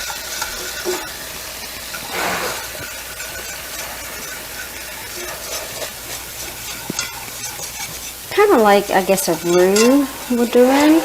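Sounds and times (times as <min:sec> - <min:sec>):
roux sizzling in a skillet: 0:00.0 - 0:11.0.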